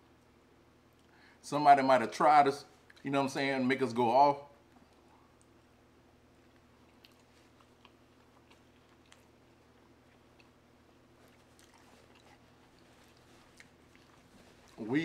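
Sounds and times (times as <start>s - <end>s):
low steady hum: 0.0s - 15.0s
close-mouthed chewing: 4.6s - 15.0s.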